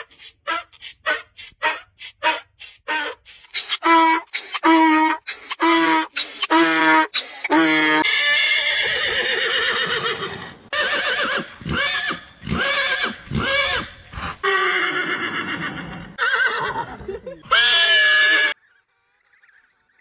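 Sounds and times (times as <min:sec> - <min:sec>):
horse whinnying: 0:07.5 - 0:18.6.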